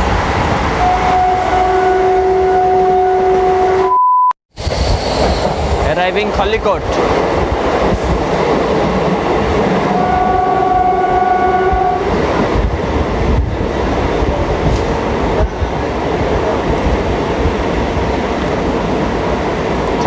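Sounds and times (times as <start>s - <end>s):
train horn: 0.8s - 4.0s, 9.8s - 12.1s
train wheels rumbling on track: 4.5s - 20.0s.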